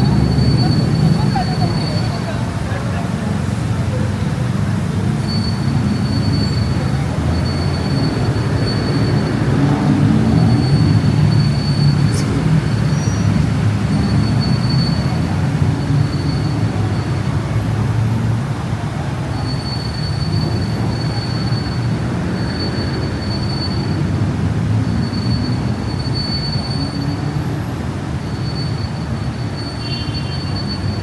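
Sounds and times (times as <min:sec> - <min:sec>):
train low rumble: 0:00.0 - 0:20.0
high wheel squeal: 0:00.0 - 0:31.0.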